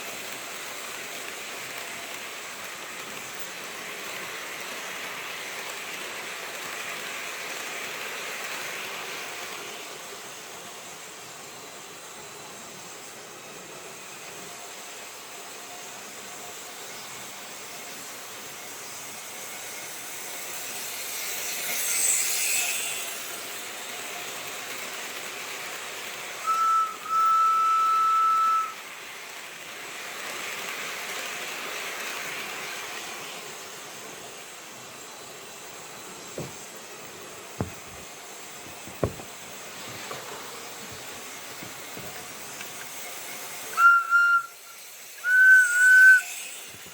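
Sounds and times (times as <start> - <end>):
steam hiss: 0.0 - 46.9
steam locomotive whistle: 26.4 - 28.9, 43.6 - 46.8.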